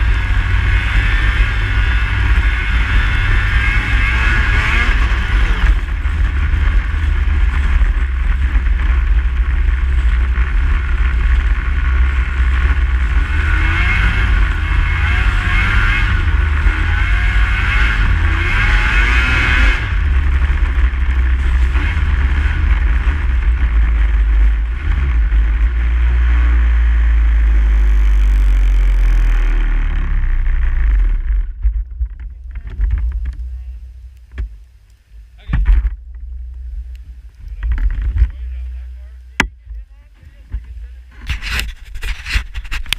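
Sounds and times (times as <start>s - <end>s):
snowmobile running: 0.0s - 34.0s
wind rumble on microphone: 0.0s - 42.9s.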